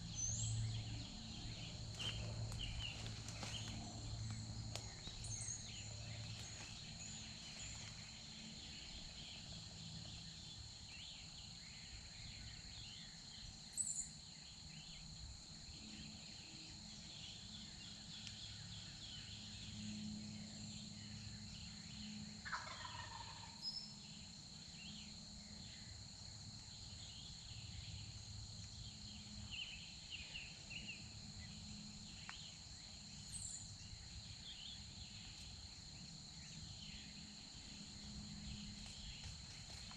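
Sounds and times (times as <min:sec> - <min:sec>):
songbird chirps: 0:00.0 - 0:15.1
high insect drone: 0:00.0 - 0:39.9
turkey gobbling: 0:22.4 - 0:23.6.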